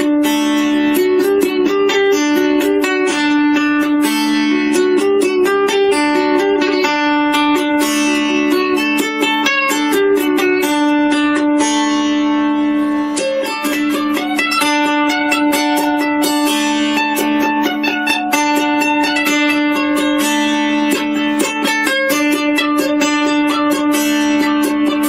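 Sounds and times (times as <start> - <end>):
plucked string melody: 0.0 - 25.0.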